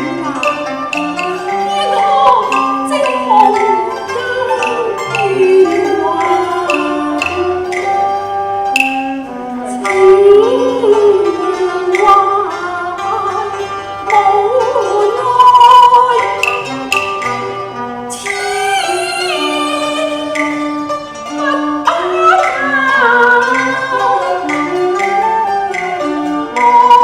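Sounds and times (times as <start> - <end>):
sharp percussion strikes: 0.0 - 10.0, 15.8 - 18.7
plucked string notes: 0.0 - 27.0
sliding wavering melody: 0.0 - 27.0.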